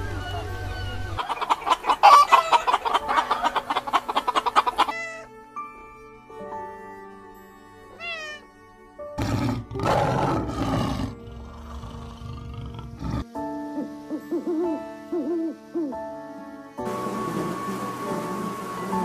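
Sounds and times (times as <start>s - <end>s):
owl hooting: 0.0s - 5.3s, 13.6s - 16.1s
soft background music: 0.0s - 19.0s
cat meowing: 7.9s - 8.5s
lion roaring: 9.2s - 13.3s.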